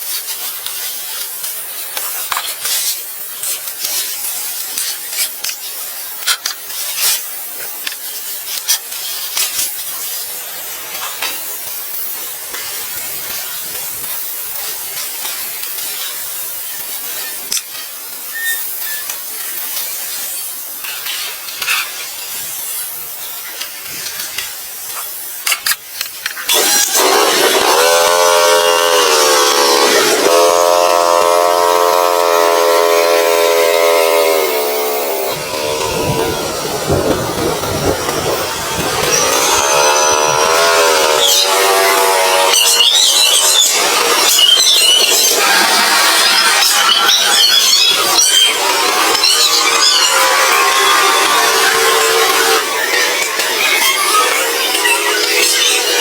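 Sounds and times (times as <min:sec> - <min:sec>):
hissing rustling noise: 0:00.0 - 0:28.0, 0:32.8 - 0:42.6
small engine running: 0:26.3 - 0:56.0.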